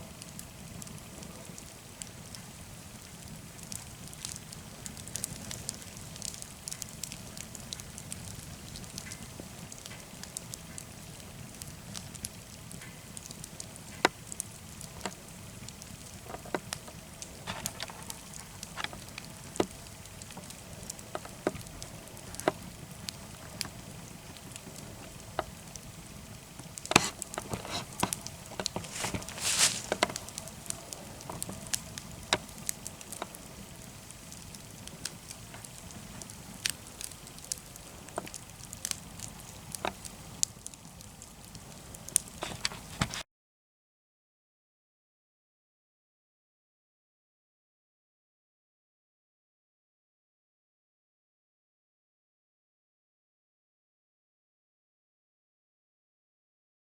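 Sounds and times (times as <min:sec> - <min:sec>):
fire low steady hiss: 0:00.0 - 0:43.2
wood fire crackling and popping: 0:00.0 - 0:43.2.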